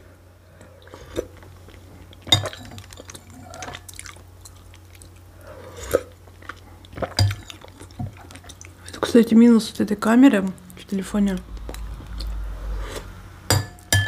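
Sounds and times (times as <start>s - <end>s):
person chewing: 0.6s - 9.1s, 11.5s - 13.2s
metal spoon clinking glass bowl: 13.5s - 14.0s.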